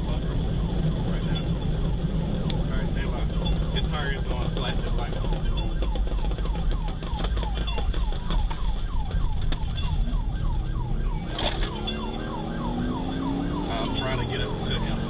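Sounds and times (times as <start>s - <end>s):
engine and road rumble: 0.0s - 15.0s
police siren yelping: 0.0s - 15.0s
engine accelerating: 10.2s - 15.0s.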